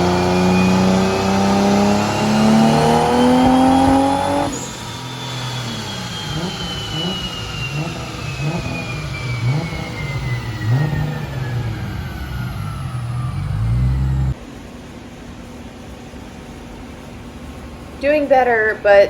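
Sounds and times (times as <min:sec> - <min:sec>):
car engine revving: 0:00.0 - 0:14.4
high whine spinning down: 0:00.0 - 0:14.4.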